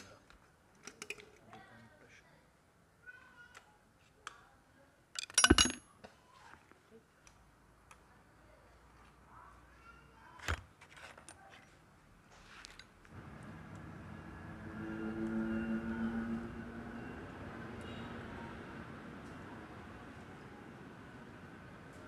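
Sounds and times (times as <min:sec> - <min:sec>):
metal tools clinking and clattering: 0:05.2 - 0:05.8.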